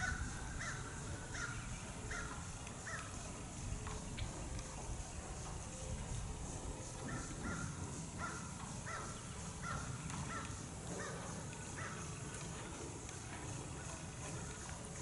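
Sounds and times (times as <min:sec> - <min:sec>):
bird calling: 0:00.0 - 0:06.2, 0:06.9 - 0:12.2
low background noise: 0:00.0 - 0:15.0.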